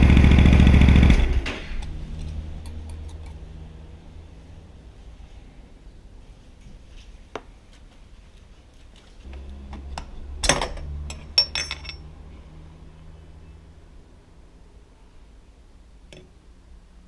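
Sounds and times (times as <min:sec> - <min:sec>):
metal tools clinking: 0:10.4 - 0:12.1.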